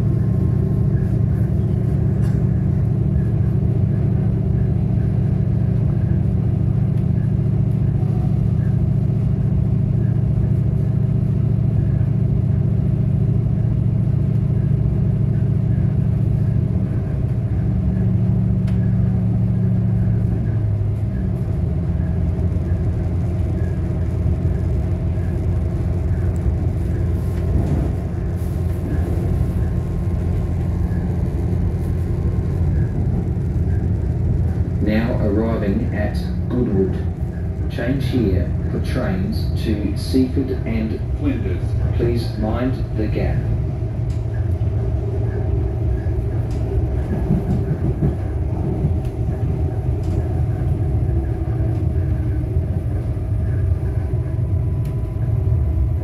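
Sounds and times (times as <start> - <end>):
diesel engine drone: 0.0 - 56.0
wheel and rail noise: 14.3 - 56.0.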